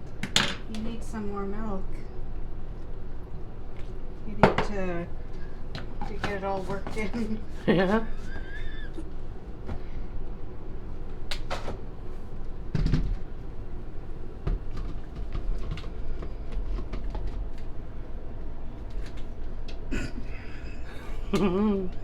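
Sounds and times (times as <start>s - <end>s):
kitchen knocks and clunks: 12.7s - 13.3s.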